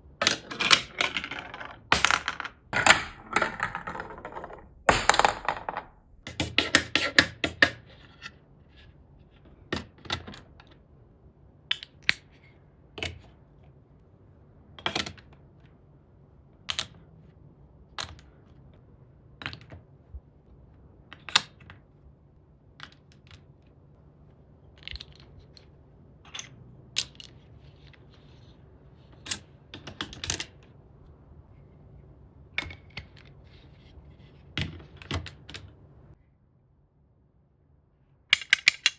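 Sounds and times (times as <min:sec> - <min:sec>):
plastic bricks clicking together: 0:00.2 - 0:07.8, 0:38.4 - 0:38.9.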